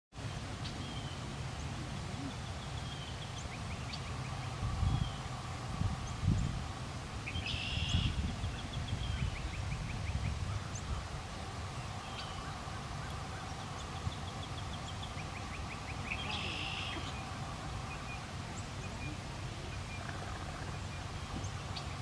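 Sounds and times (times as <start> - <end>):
wind rumble on microphone: 0.2 - 22.0
harsh bird call: 15.4 - 18.3.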